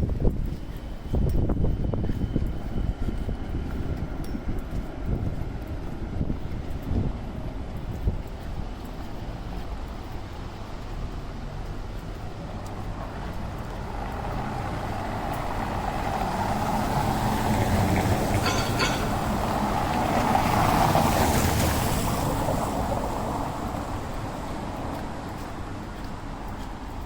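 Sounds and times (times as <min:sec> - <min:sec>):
vehicle passing on wet street: 0:08.6 - 0:27.0.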